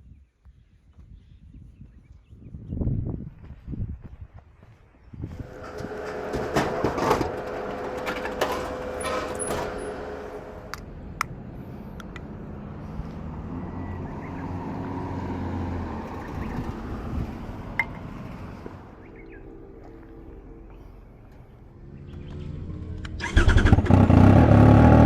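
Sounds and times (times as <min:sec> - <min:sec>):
vehicle passing by: 0:05.3 - 0:25.0.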